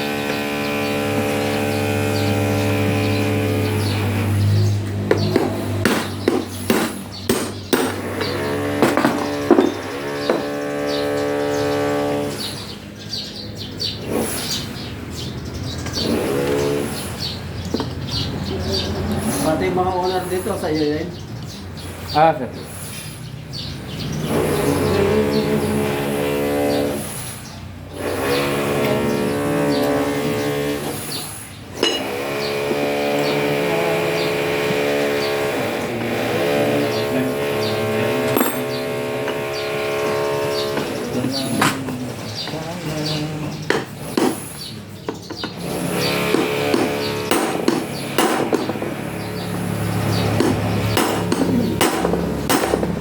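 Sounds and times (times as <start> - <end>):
motor humming: 0.0 - 22.0, 22.6 - 53.0
small birds chirping: 0.0 - 53.0
steady humming tone: 27.8 - 43.7.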